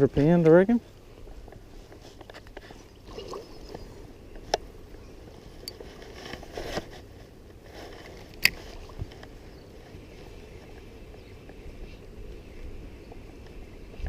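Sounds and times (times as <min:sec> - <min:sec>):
handling scraping and rustling: 0:00.2 - 0:04.6, 0:05.2 - 0:10.9.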